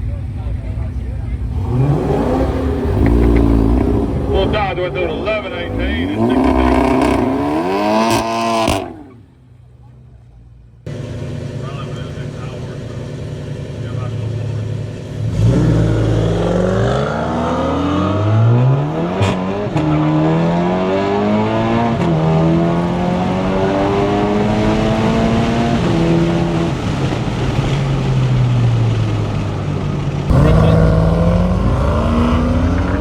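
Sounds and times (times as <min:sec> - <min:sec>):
car engine accelerating hard: 0:00.0 - 0:33.0
quick gear upshifts: 0:00.0 - 0:33.0.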